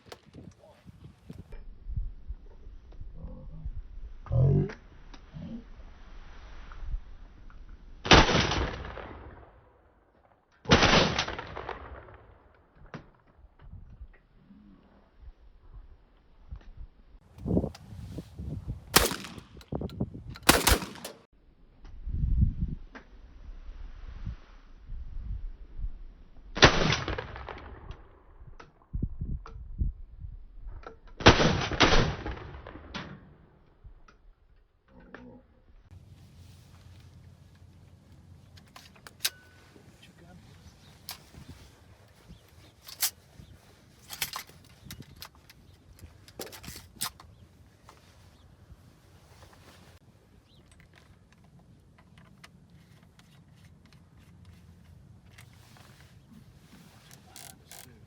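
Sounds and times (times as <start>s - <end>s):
shotgun volleys: 18.9s - 19.6s, 20.5s - 21.3s.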